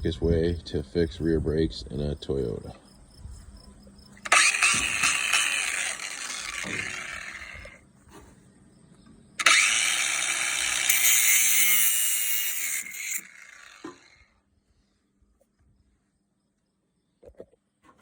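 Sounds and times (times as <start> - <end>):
power tool on metal: 4.2 - 7.8, 9.4 - 14.2.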